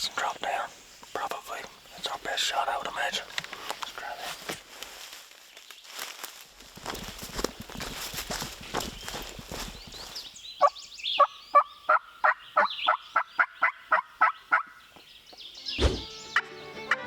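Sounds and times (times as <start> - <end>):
loud thump: 15.8 - 16.1.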